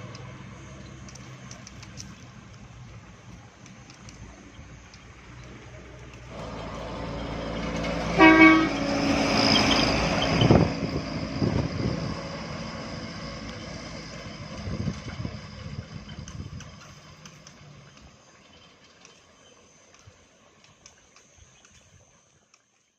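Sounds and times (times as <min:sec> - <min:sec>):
vehicle passing: 0:04.3 - 0:18.2
vehicle horn toot: 0:08.1 - 0:10.6.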